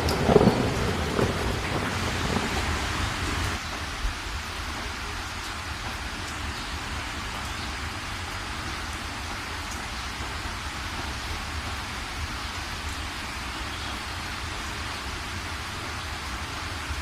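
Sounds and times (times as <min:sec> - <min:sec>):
rain falling steadily: 0:00.0 - 0:17.0.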